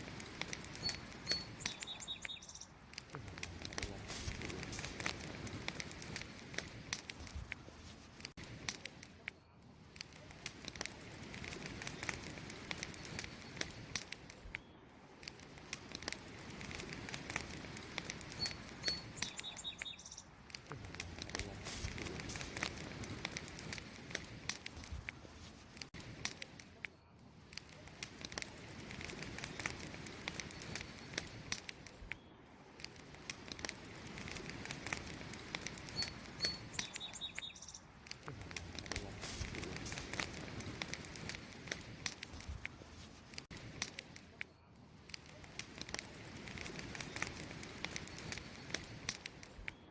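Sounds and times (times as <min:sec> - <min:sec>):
campfire crackling: 0:00.0 - 0:49.9
high bird chirp: 0:00.8 - 0:02.8, 0:18.4 - 0:20.4, 0:35.9 - 0:37.9.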